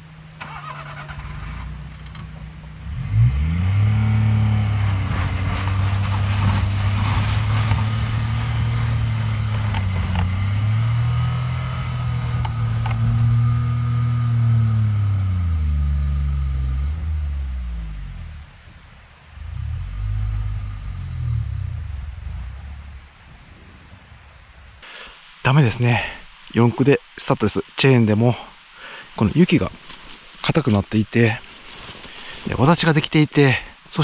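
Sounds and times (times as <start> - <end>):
truck engine revving: 0.0 - 23.3.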